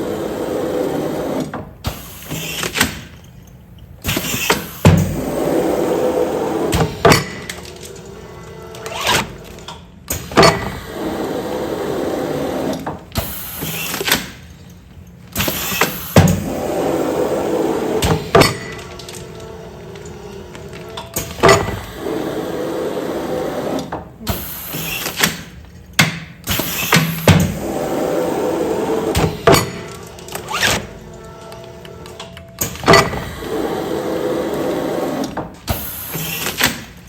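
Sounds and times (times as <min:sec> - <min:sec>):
steady machine noise: 0:27.4 - 0:35.4.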